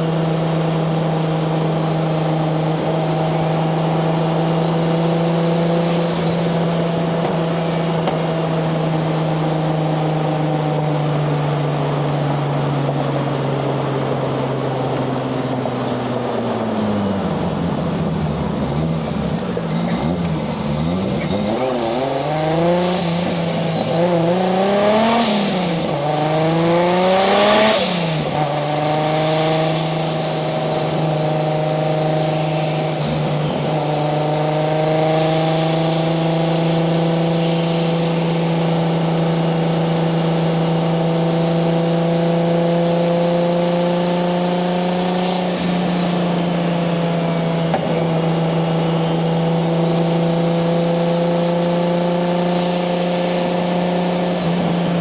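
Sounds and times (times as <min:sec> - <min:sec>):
car engine revving: 0:00.0 - 0:55.0
turbo whistle: 0:04.3 - 0:07.2, 0:20.8 - 0:39.8, 0:40.5 - 0:46.1.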